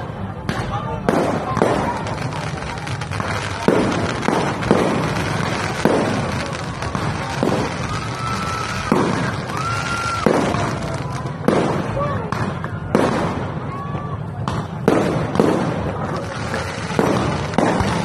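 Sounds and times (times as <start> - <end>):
firework bangs: 0.0 - 18.0
firework crackle: 0.0 - 18.0
firework whistles: 1.2 - 12.0.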